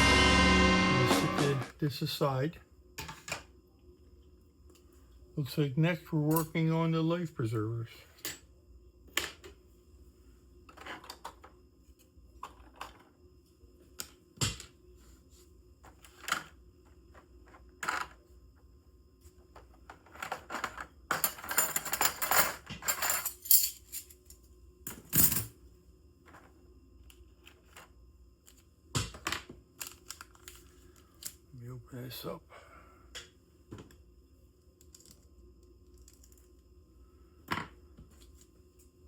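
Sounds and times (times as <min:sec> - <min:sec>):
rattling and rustling of packaging: 0:29.8 - 0:31.1.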